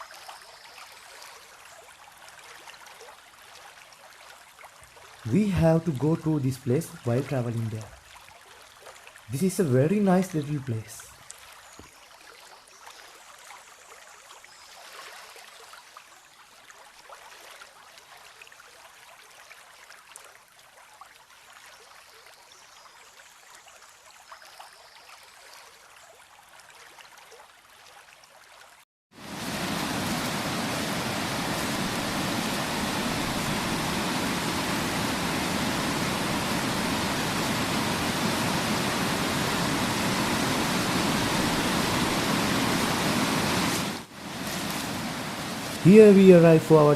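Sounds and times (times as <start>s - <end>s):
faint stream rushing: 29.2s - 46.9s
waterfall roaring: 29.2s - 46.9s.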